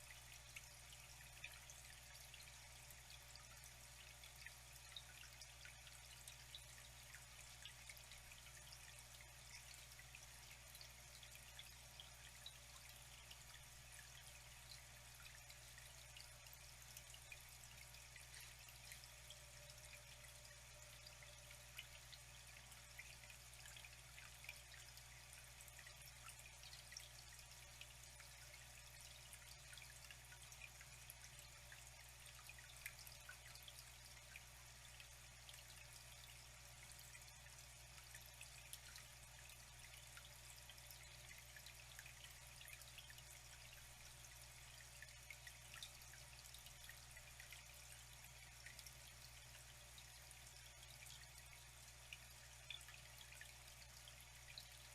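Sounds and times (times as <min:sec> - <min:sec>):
water trickling and dripping: 0:00.0 - 0:54.9.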